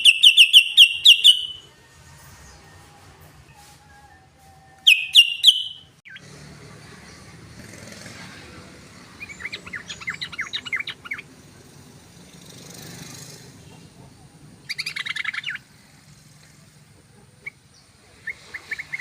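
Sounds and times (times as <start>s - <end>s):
bird calling sharp notes: 0.0s - 1.7s, 4.8s - 6.2s.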